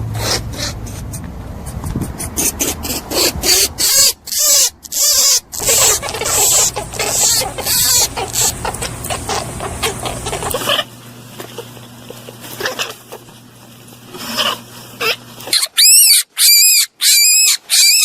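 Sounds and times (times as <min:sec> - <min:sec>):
rabbit hissy bursts: 0:02.2 - 0:10.9.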